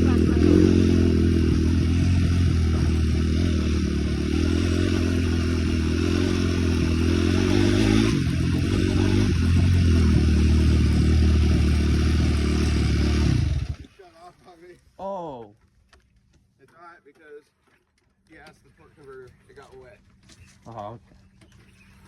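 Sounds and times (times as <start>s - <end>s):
small off-road engine running: 0.0s - 14.0s.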